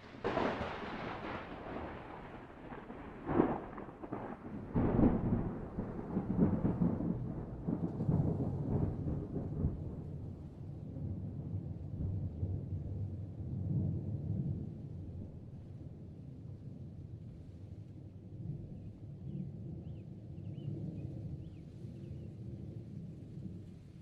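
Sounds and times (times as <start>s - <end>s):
thunder crack and rumble: 0.0s - 16.2s.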